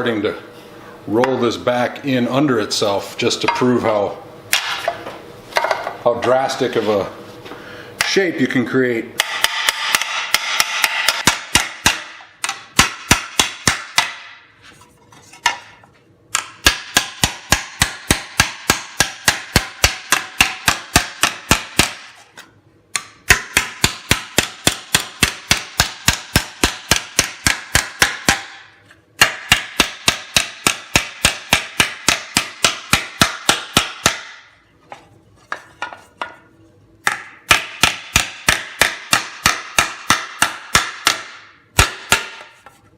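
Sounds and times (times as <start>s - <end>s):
hammer striking sheet metal: 4.5s - 5.0s, 9.2s - 14.5s, 15.4s - 22.4s, 23.0s - 34.6s, 37.0s - 42.8s.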